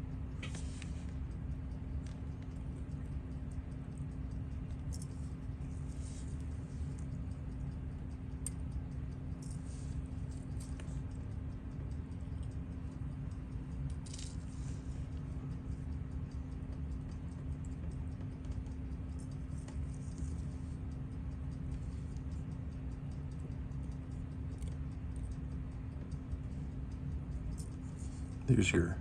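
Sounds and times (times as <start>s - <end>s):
faint watch ticking: 0.0s - 29.0s
low electrical hum: 0.0s - 29.0s
small tools clicking on metal: 6.9s - 14.4s.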